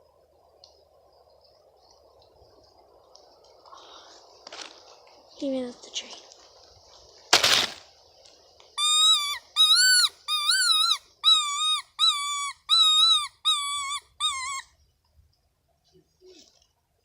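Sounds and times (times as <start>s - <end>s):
loud high-pitched call: 8.8s - 14.7s.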